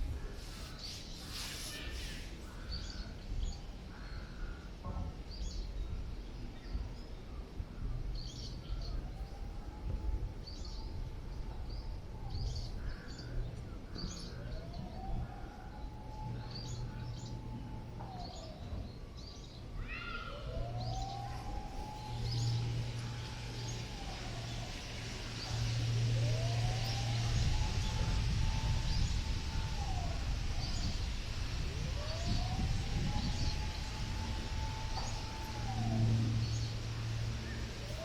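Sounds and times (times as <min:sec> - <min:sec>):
wind buffeting microphone: 0:00.0 - 0:38.0
faint rising tone: 0:20.6 - 0:38.0.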